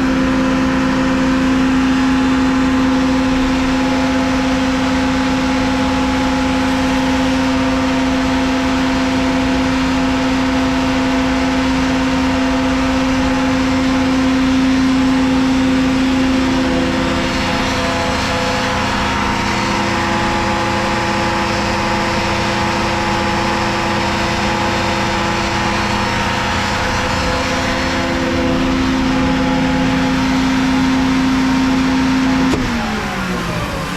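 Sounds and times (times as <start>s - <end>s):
air compressor humming: 11.1s - 33.9s.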